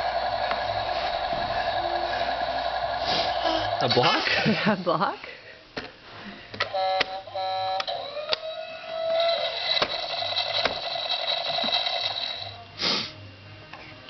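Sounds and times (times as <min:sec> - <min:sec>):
short hiss: 0:12.8 - 0:13.2.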